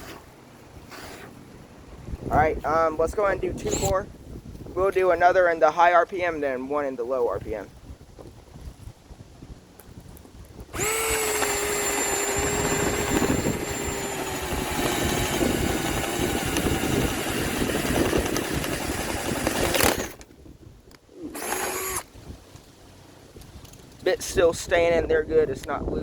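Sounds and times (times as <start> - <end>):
cordless drill motor whine: 3.6 - 4.0, 10.6 - 20.2, 21.3 - 22.1
drill bit cutting wood: 3.6 - 4.0, 10.7 - 20.2, 21.3 - 22.1.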